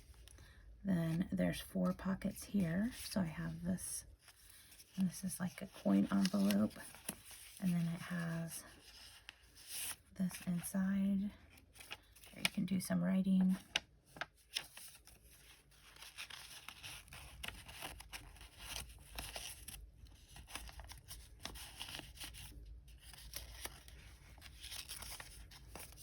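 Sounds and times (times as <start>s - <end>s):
paper rustling and crinkling: 5.6s - 10.4s, 11.4s - 12.6s, 13.4s - 26.0s.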